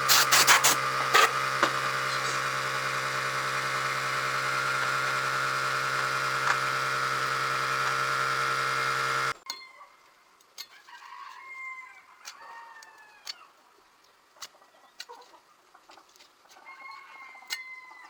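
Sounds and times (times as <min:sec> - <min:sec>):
electric motor humming: 0:00.0 - 0:09.4.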